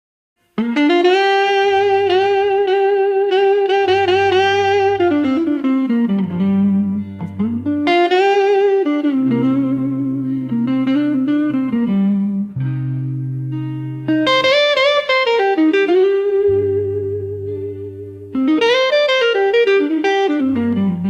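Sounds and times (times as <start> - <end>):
electric guitar bending notes: 0.5 - 21.0
sustained bass notes: 1.4 - 8.4, 9.1 - 14.2, 16.4 - 18.4.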